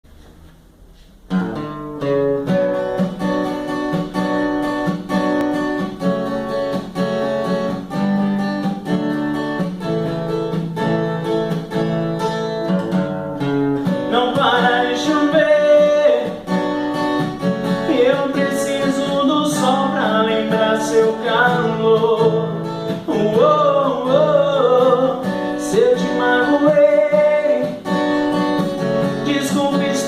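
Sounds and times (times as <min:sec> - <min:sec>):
acoustic guitar strumming: 0:00.1 - 0:30.0
person singing: 0:14.1 - 0:16.5, 0:17.8 - 0:27.8, 0:29.2 - 0:30.0.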